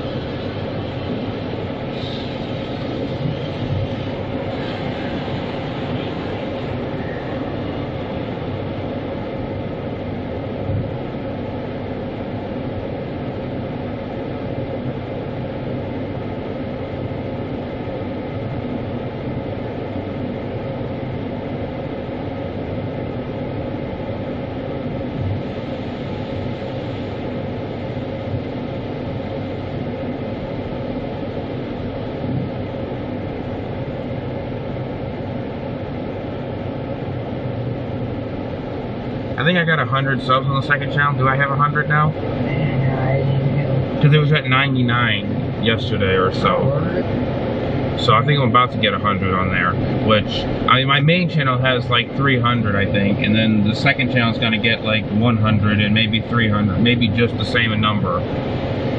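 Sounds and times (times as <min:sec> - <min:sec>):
car wash equipment running: 0:00.0 - 0:58.9.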